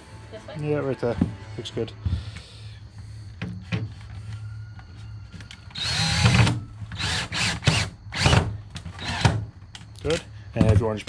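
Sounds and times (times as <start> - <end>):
cordless drill driving screws: 5.7 - 9.3.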